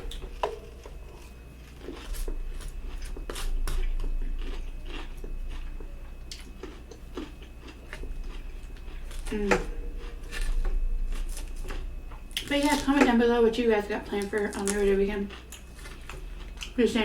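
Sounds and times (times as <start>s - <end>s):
chewing with mouth clicks: 0.0s - 12.9s, 14.1s - 16.8s.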